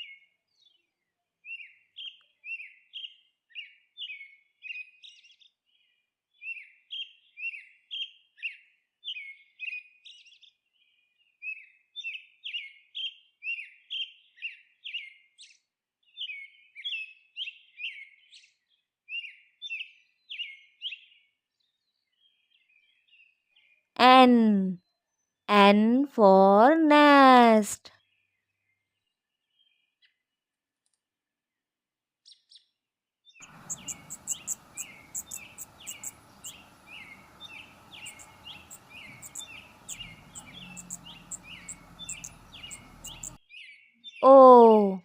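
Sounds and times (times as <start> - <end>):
songbird chirping: 33.4 - 45.0.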